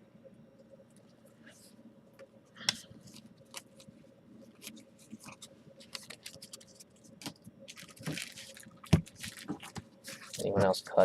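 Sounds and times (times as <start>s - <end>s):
cards being flipped through: 4.6s - 10.9s.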